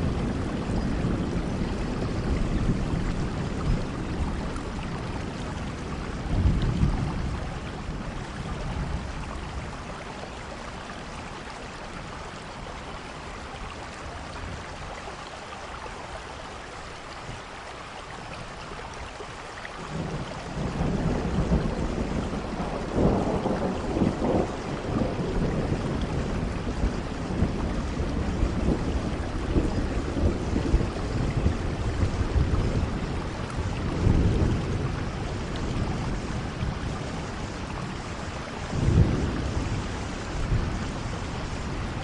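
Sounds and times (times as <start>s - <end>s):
rolling thunder: 0.0s - 9.8s, 19.9s - 42.0s
steady rain: 0.0s - 42.0s.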